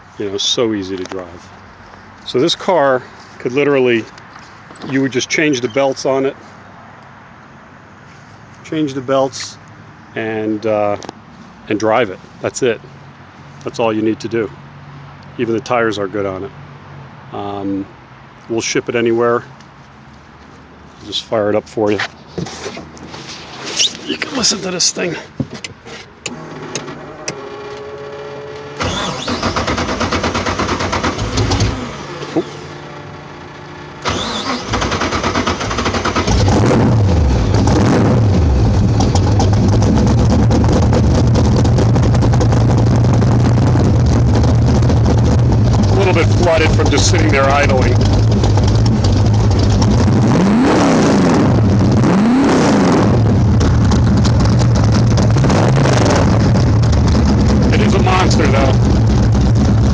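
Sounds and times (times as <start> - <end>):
person speaking: 23.8 - 25.4, 45.9 - 48.0, 57.6 - 58.8
starter motor whirring: 26.2 - 32.7, 34.0 - 42.7, 44.0 - 50.3
car engine revving: 26.2 - 59.9.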